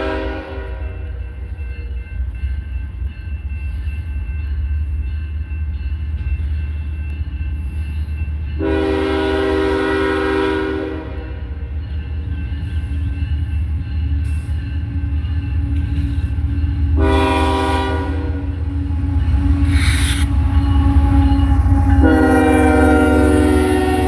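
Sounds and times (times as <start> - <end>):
locomotive air horn blast: 0.0 - 1.0, 8.6 - 11.4, 17.0 - 18.6, 19.6 - 24.0
diesel freight train rumbling: 0.0 - 24.0.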